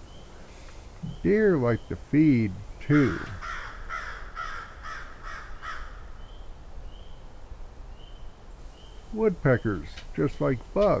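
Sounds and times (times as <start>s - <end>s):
bird's harsh calls: 0.0s - 7.2s.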